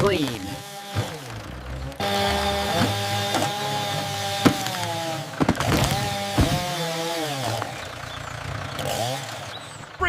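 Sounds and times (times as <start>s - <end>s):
chainsaw cutting through a log: 0.0s - 9.8s
sharp knocks: 5.4s - 6.7s.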